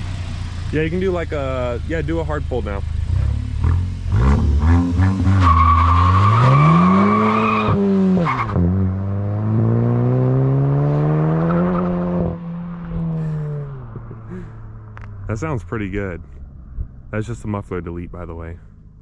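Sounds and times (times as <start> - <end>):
car engine revving at full throttle: 0.0 - 16.0
tyre squeal: 5.0 - 8.6.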